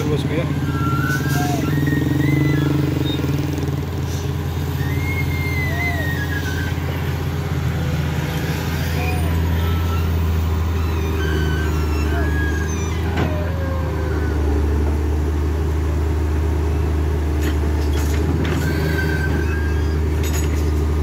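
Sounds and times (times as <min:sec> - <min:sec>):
faint whistling glides: 0:00.0 - 0:13.8
traffic engines humming: 0:00.0 - 0:21.0.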